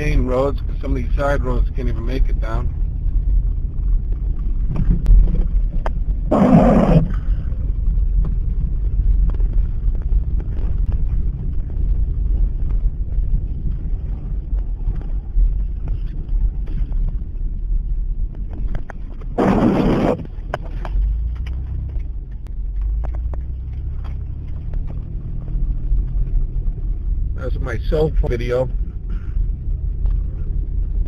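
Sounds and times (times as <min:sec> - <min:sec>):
car engine and road rumble: 0:00.0 - 0:31.0
rush of noise: 0:04.2 - 0:07.7, 0:19.2 - 0:20.5.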